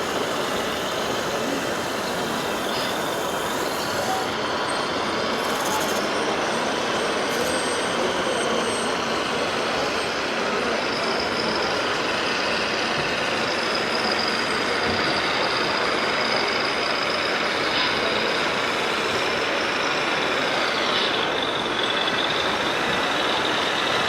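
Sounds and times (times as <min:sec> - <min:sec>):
thin high whine: 0:00.0 - 0:12.0
model truck engine noise: 0:00.0 - 0:24.0.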